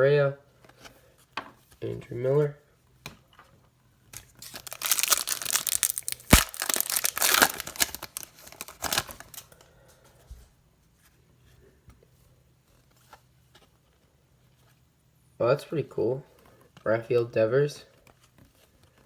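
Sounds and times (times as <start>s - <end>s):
plastic wrapper tearing and crinkling: 4.1s - 9.6s.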